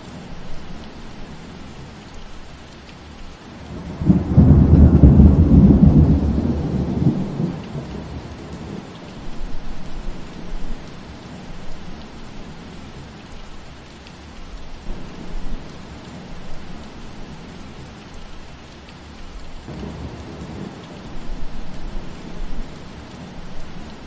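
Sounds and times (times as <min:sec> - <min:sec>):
rain falling through trees: 0:00.0 - 0:24.0
low rumble of thunder: 0:03.6 - 0:12.1, 0:14.9 - 0:18.2, 0:19.4 - 0:24.0.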